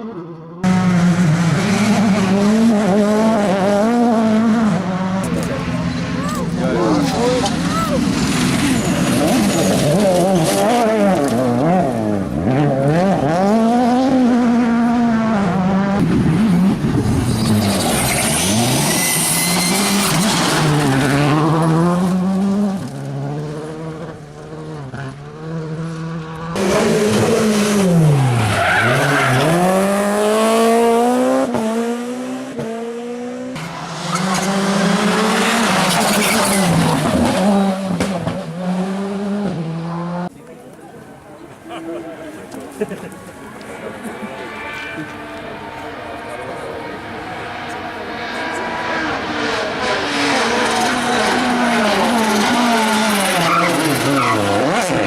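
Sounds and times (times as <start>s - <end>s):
rally car engines revving: 0.0s - 55.0s
tyre squeal: 5.9s - 10.6s, 17.2s - 21.2s, 35.4s - 37.0s, 52.2s - 54.7s.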